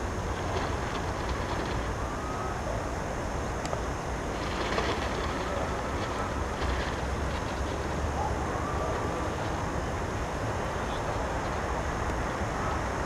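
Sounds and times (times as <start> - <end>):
water rushing along boat hull: 0.0 - 3.3, 3.9 - 10.5
wind rumbling on microphone: 0.0 - 13.0.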